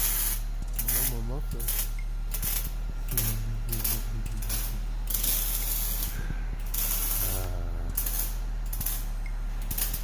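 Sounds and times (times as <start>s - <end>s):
air tool ratcheting and whirring: 0.0s - 10.0s
steady low hum: 0.0s - 10.0s
hissing air: 2.4s - 10.0s.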